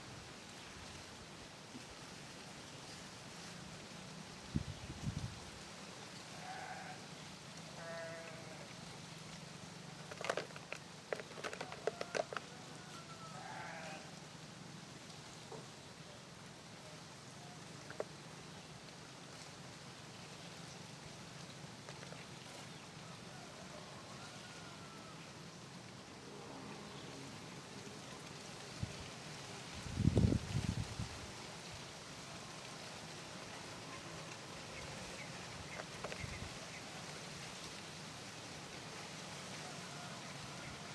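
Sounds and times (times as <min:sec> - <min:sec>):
livestock bleating: 0:06.4 - 0:07.0, 0:07.8 - 0:08.7, 0:13.2 - 0:14.1.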